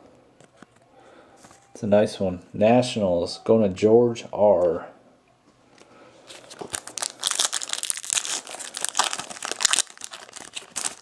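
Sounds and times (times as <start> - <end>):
plastic wrapper crinkling and tearing: 6.3 - 11.0.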